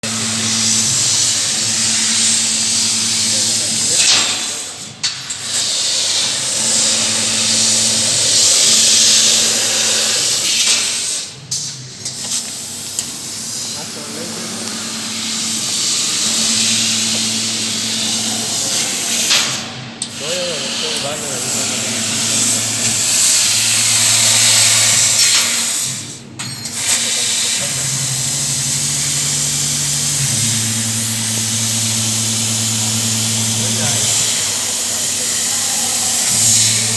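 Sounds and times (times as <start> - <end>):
low machine hum: 0.0 - 4.0, 6.3 - 10.4, 13.1 - 20.1, 21.0 - 36.9
laser cutter gas hissing: 0.0 - 36.9.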